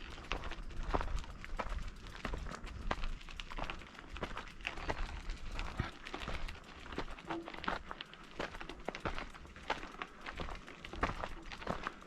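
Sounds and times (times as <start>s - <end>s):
wind rumble on microphone: 0.0s - 7.1s
crunching over gravelly ground: 0.0s - 12.0s.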